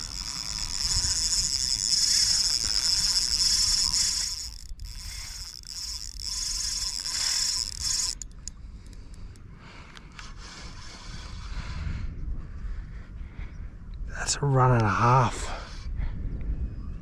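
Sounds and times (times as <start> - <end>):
fishing reel drag buzzing: 0.0 - 9.4, 10.0 - 11.6.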